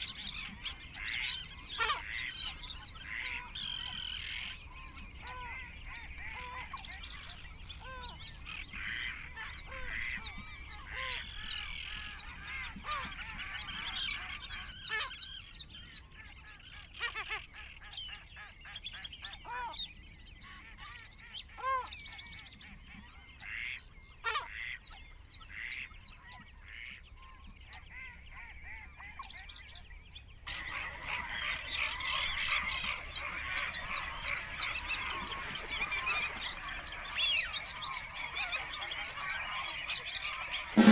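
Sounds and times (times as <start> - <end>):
lower arching bird calls: 30.5 - 40.9
rapid high bird chirps: 30.5 - 40.9.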